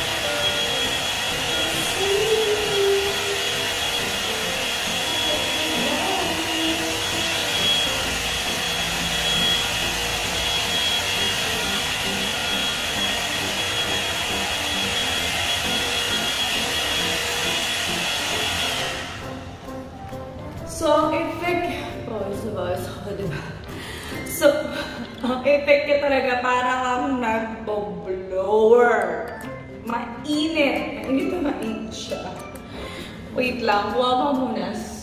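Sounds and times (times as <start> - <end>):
hair dryer blowing with whine: 0.0 - 20.8.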